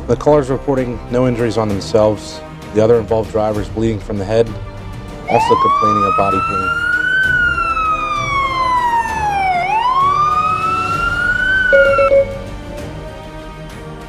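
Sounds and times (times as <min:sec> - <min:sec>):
emergency vehicle siren wailing: 0:05.3 - 0:12.6.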